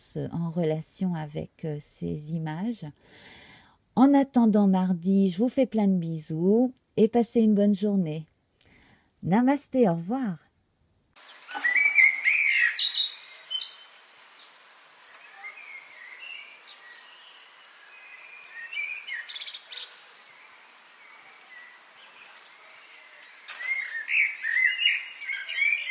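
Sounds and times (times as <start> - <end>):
small songbirds chirping: 11.2 - 25.9.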